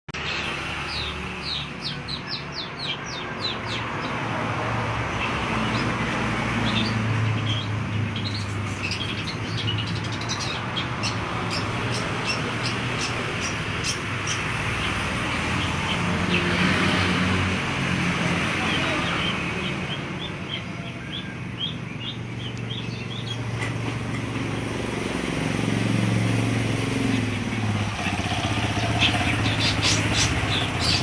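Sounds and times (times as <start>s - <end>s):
bird chattering notes: 28.1s - 31.0s.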